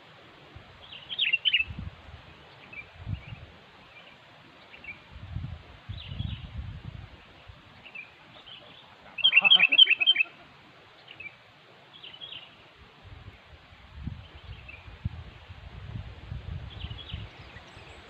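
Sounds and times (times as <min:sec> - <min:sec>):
bird singing quick chirps: 0:00.9 - 0:01.8, 0:07.8 - 0:10.4
faint bird calls: 0:07.8 - 0:11.4.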